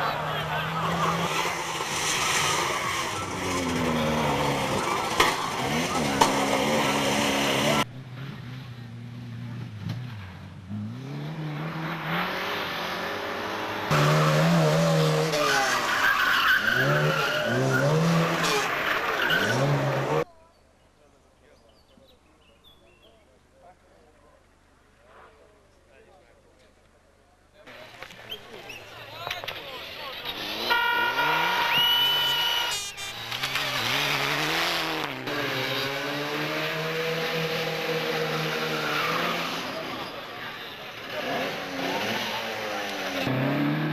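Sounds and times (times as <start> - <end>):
rally car engine revving: 0.0 - 20.2, 30.1 - 43.9
tyres squealing: 13.9 - 20.2
shrill steady tone: 30.7 - 33.2.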